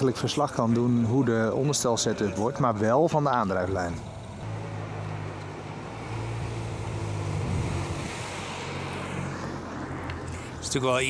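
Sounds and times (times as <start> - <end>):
car engine low drone: 3.2 - 11.0
wind noise on microphone: 6.3 - 9.2.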